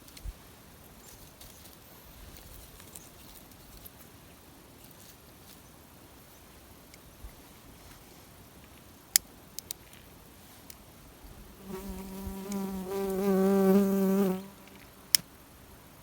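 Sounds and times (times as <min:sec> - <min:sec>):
rustling of dry twigs and straw: 0:00.0 - 0:09.0.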